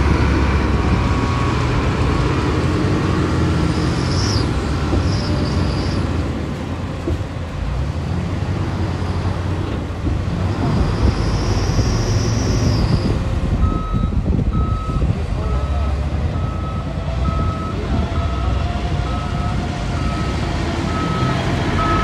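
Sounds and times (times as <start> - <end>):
heavy diesel machinery rumble: 0.0 - 22.0
high squeal: 3.6 - 6.2, 10.7 - 13.2
reversing alarm beeping: 13.6 - 22.0.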